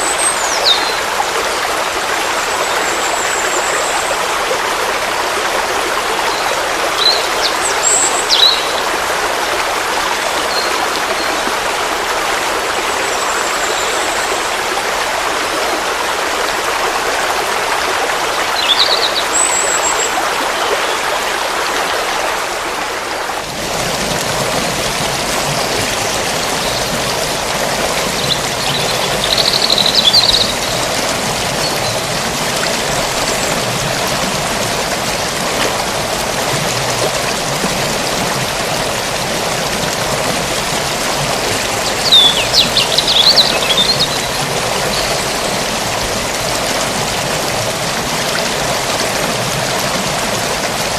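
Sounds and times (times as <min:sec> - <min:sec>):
stream flowing: 0:00.0 - 0:50.9
high bird chirps: 0:28.2 - 0:30.8, 0:42.0 - 0:45.2.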